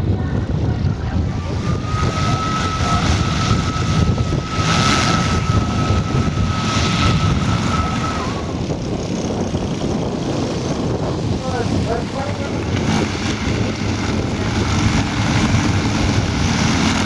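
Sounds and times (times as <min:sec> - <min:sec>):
model airplane engine whine: 0:00.0 - 0:17.0
wind noise on microphone: 0:00.0 - 0:17.0.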